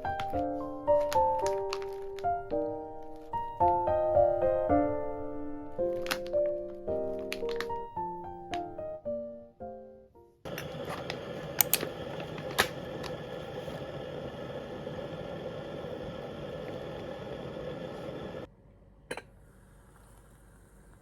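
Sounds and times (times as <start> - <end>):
sharp clicks: 10.5 - 13.2
droning machine hum: 10.5 - 18.5.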